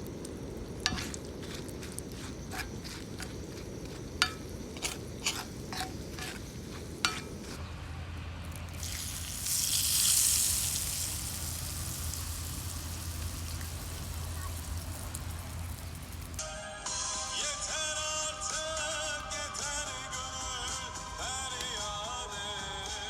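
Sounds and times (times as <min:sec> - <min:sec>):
food frying in hot oil: 0:00.0 - 0:07.6, 0:08.6 - 0:16.4.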